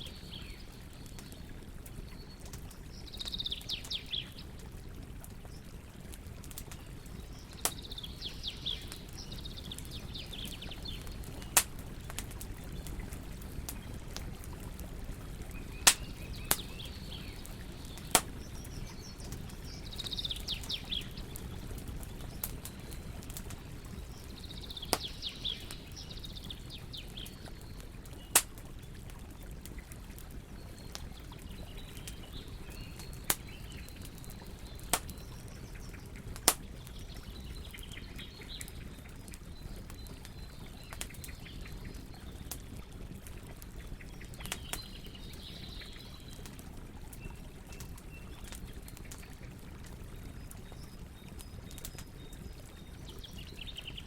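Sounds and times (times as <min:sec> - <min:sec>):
small birds chirping: 0:00.0 - 0:54.0
wood campfire crackling: 0:00.0 - 0:54.0
fire popping loudly: 0:00.2 - 0:38.2.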